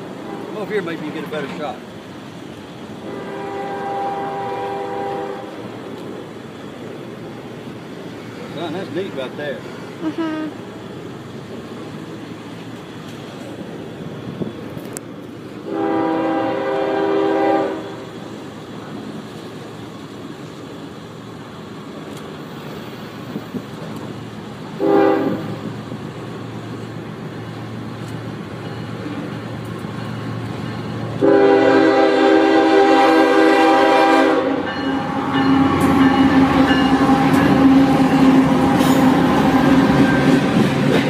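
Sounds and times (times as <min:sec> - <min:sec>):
rail rumble: 0:00.0 - 0:41.0
train passing drone: 0:00.0 - 0:41.0
locomotive horn blasts: 0:03.0 - 0:05.6, 0:15.7 - 0:18.0, 0:24.8 - 0:25.6, 0:31.2 - 0:39.0.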